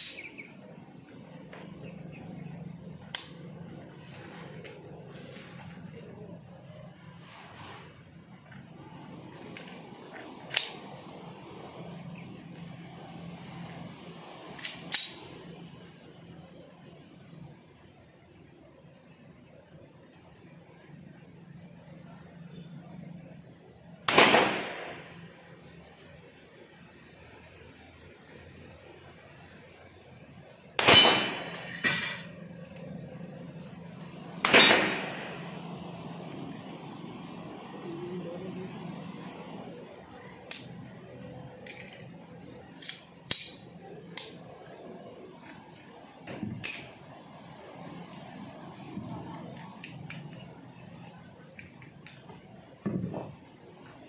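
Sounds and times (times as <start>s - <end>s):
steady low hum: 0.0s - 54.0s
sharp cracks: 24.1s - 25.1s
pistol shots: 24.1s - 25.2s, 30.8s - 32.1s, 34.4s - 35.5s.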